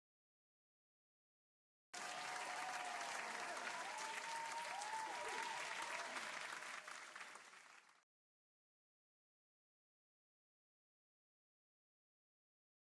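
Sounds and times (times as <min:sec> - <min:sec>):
cheers: 0:02.0 - 0:08.0
crowd applause: 0:02.0 - 0:08.0.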